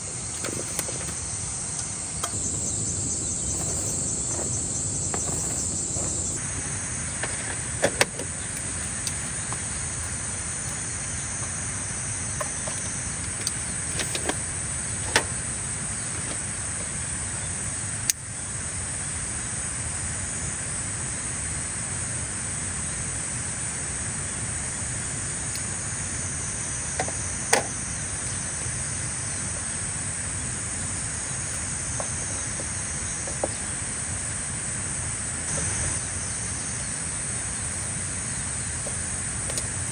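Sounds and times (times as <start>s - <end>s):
low steady rumble: 0.0s - 18.0s
insects chirring: 0.0s - 39.9s.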